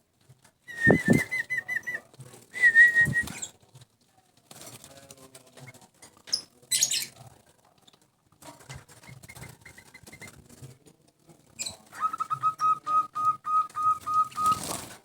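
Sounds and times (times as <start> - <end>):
bird chirping: 11.6 - 14.7
harsh bird call: 12.0 - 14.7.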